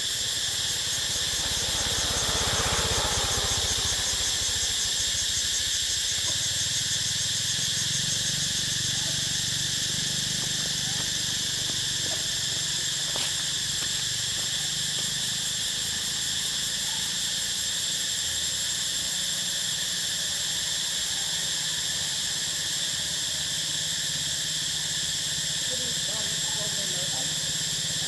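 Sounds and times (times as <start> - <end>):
insects buzzing: 0.0 - 28.0.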